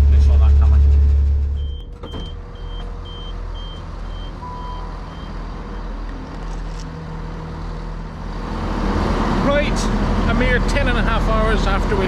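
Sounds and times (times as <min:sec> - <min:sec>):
train rumbling: 0:00.0 - 0:12.0
short electronic beeps: 0:01.6 - 0:05.3.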